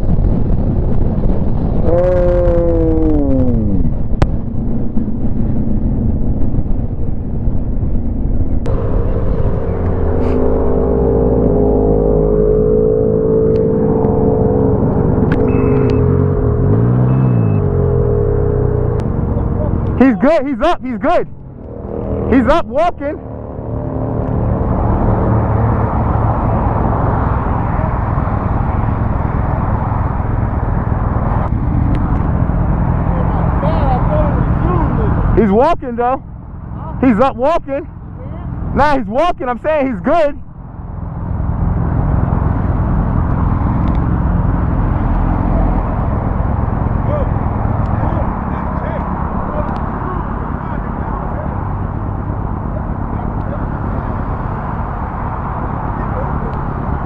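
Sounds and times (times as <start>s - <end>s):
motorcycle engine: 0.0s - 39.1s, 39.8s - 57.0s
road rumble: 0.0s - 57.0s.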